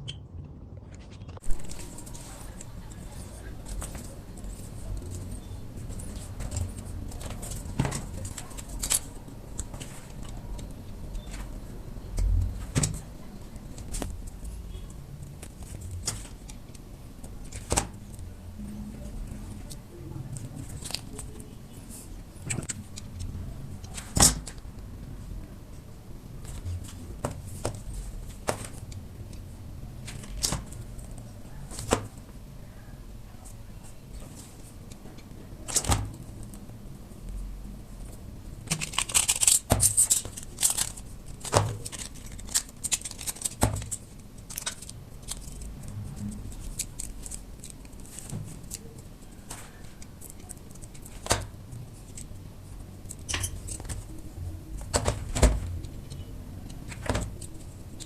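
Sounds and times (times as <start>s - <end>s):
metal crinkling: 38.0s - 58.0s.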